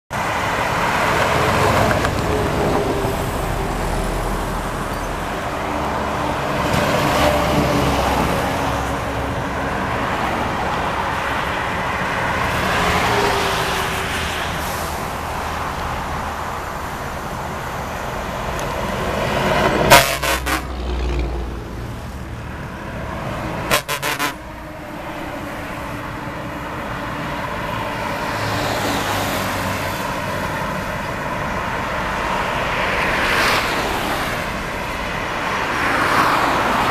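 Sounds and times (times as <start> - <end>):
heavy trucks passing on highway: 0.1 - 36.9
truck horns: 19.5 - 21.3, 23.4 - 28.6.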